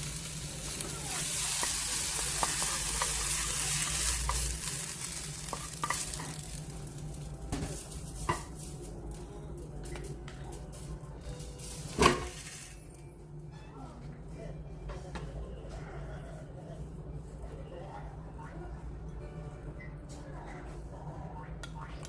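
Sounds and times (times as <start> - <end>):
food frying in hot oil: 0.0 - 9.0.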